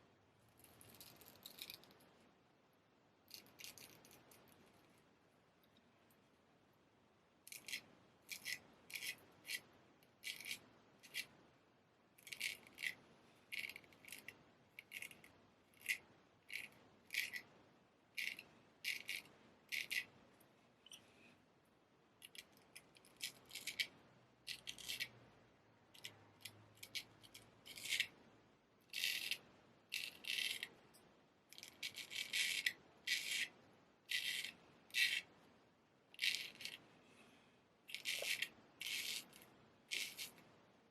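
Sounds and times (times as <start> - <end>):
razor edge scraping: 7.5 - 11.4, 12.2 - 17.5, 18.2 - 20.1, 22.2 - 25.2, 26.0 - 28.2, 28.9 - 30.8, 31.6 - 35.3, 36.1 - 36.8, 37.9 - 40.4.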